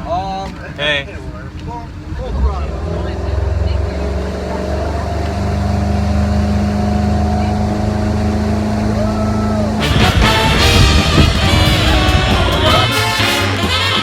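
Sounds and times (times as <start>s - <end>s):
motorboat engine droning: 1.1s - 14.0s
music: 9.8s - 14.0s.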